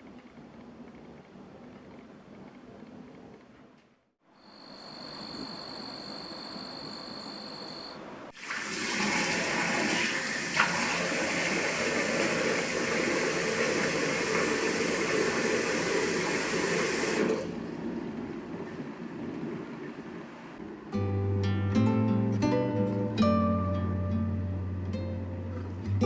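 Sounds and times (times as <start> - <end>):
water running from tap: 8.4 - 17.5.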